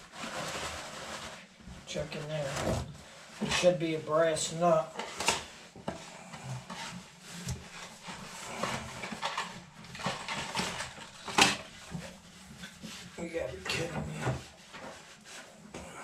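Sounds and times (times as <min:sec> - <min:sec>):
hands rummaging through parts: 0:06.7 - 0:12.8.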